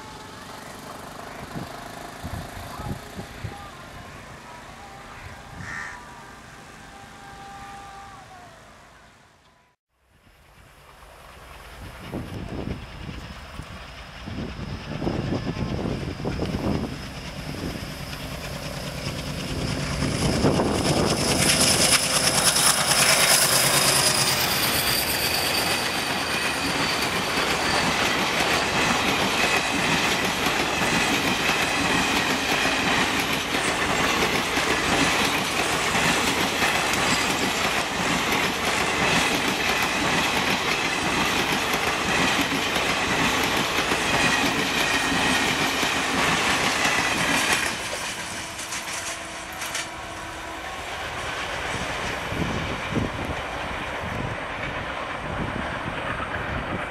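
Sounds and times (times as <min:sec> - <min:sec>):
diesel locomotive passing: 0:00.0 - 0:56.9
clickety-clack of wheels over rail joints: 0:10.5 - 0:50.3, 0:51.0 - 0:56.9
high whining ring from wheels: 0:11.4 - 0:31.0.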